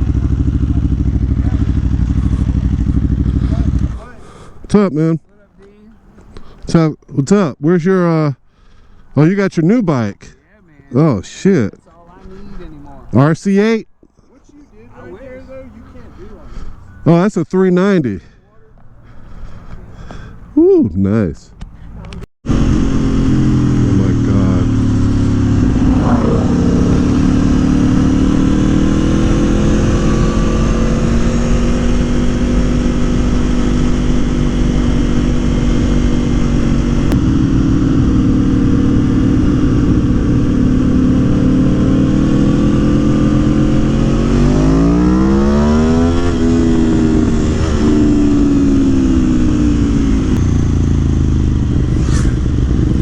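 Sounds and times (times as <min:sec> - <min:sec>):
motorcycle engine revving: 0:00.0 - 0:04.2, 0:21.9 - 0:53.0.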